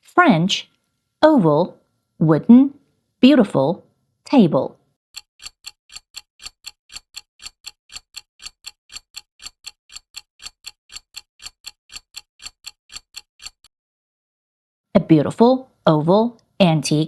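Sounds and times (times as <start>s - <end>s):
clock ticking: 5.2s - 13.7s.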